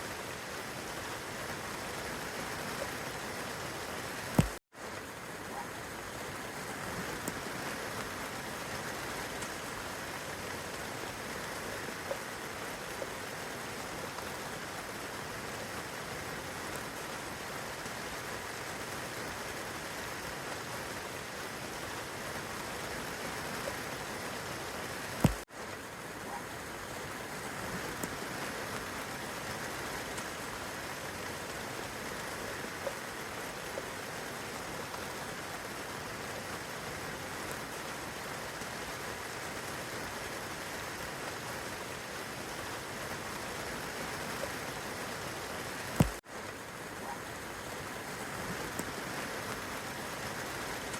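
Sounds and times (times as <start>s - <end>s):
rain on leaves and grass: 0.0s - 50.9s.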